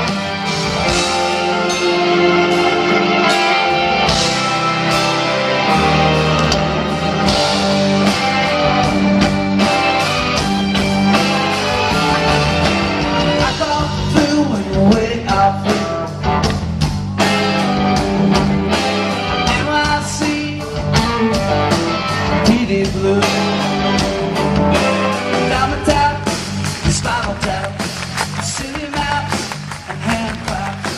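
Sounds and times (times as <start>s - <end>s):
live rock band playing: 0.0s - 30.9s
person singing: 11.2s - 16.3s, 19.3s - 21.2s, 24.8s - 30.9s.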